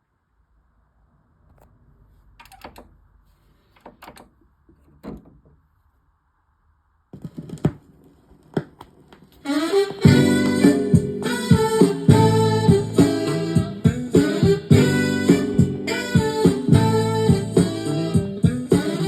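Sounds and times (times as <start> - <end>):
music with pitched instrument: 9.7 - 19.0.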